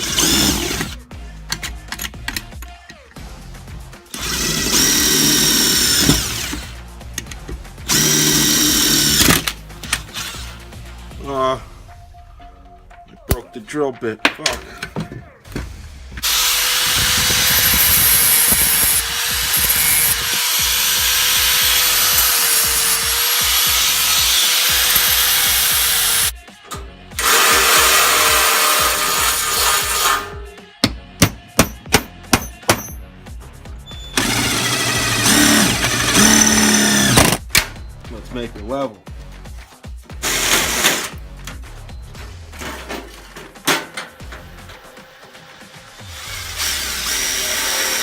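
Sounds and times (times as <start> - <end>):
electric drill boring through metal: 0.0 - 1.0, 4.1 - 6.8, 7.8 - 10.6, 16.2 - 26.3, 27.2 - 30.4, 34.1 - 37.5, 40.2 - 41.2, 45.9 - 48.0.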